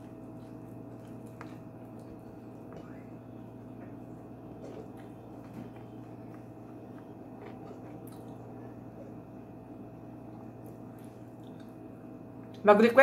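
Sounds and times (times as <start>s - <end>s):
small clicks and crackles of food: 0.0s - 8.5s
chewing with mouth closed: 0.0s - 9.2s, 10.2s - 11.9s
steady low hum: 0.0s - 13.0s.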